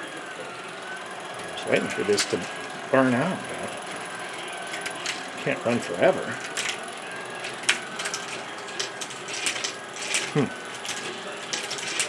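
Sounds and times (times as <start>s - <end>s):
wooden gears whirring: 1.4s - 12.0s
marbles clacking on wooden track: 4.7s - 12.0s.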